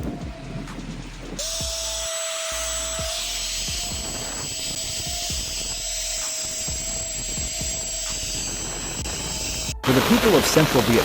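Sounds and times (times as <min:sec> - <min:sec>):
low thumps: 0:00.0 - 0:02.0.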